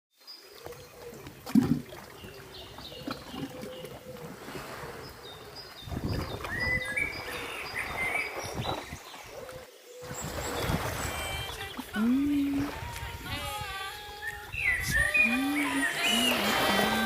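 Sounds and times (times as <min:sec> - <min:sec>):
sea water sloshing: 0:00.4 - 0:17.0
wind on microphone: 0:04.4 - 0:09.4, 0:10.0 - 0:17.0
high chirping calls: 0:14.0 - 0:17.0.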